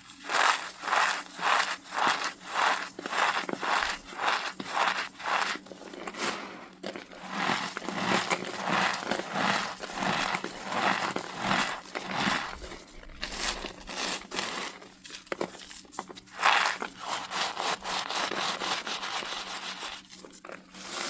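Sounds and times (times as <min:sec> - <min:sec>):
cornstarch crunching: 0:00.0 - 0:21.0.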